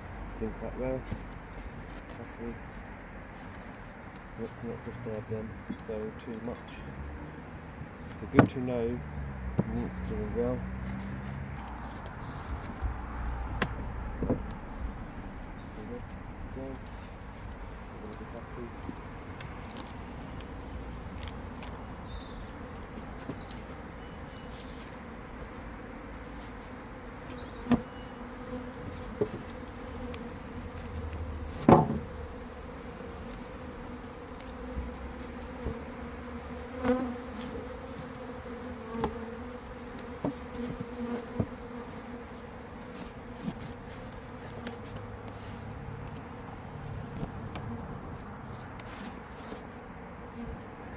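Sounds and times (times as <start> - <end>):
sharp knocks and clicks: 13.6 - 14.6
bee colony buzzing: 16.8 - 48.0.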